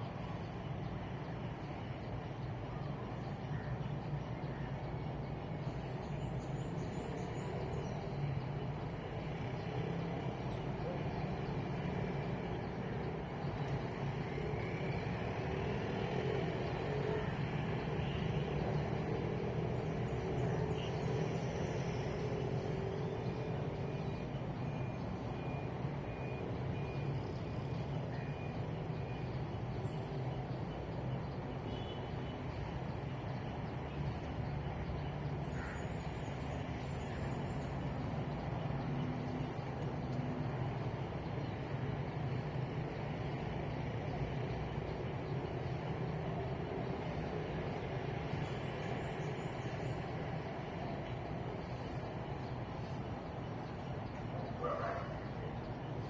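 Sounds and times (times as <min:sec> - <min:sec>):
road traffic drone: 0:00.0 - 0:56.0.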